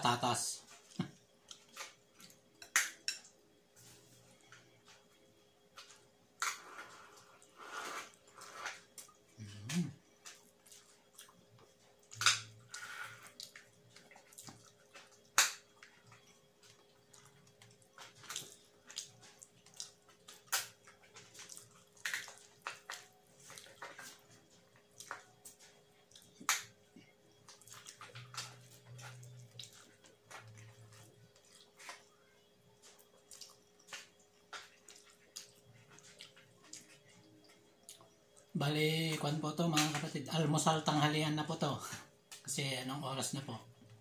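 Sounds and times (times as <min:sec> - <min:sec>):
wet chewing and lip-smacking: 0:10.2 - 0:12.3, 0:13.2 - 0:32.2, 0:32.8 - 0:38.5.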